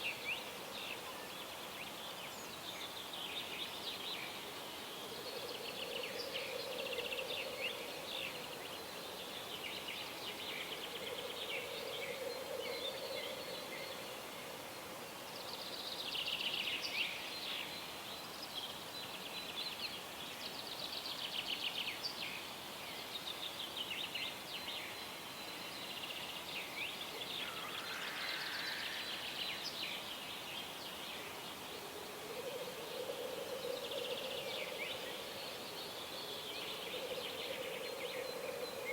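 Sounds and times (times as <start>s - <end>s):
songbirds dawn chorus: 0.0s - 38.9s.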